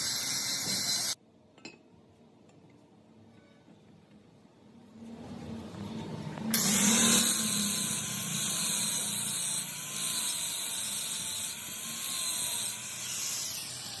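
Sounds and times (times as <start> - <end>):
machine running with high hiss: 0.0 - 1.2.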